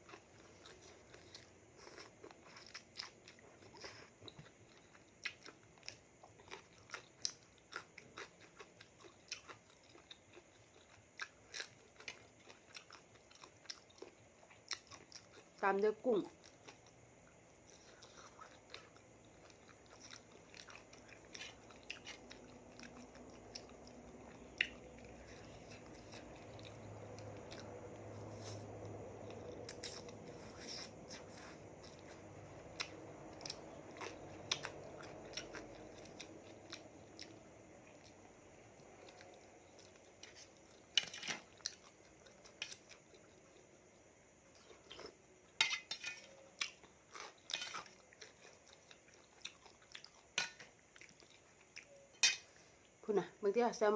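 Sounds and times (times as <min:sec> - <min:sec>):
person chewing food: 0:00.0 - 0:15.6, 0:16.3 - 0:53.0
crunches while chewing: 0:16.3 - 0:43.7.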